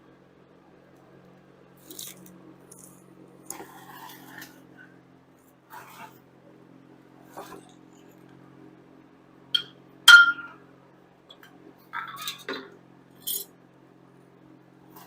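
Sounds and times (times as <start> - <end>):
metal hand tools clinking: 13.2 - 13.5.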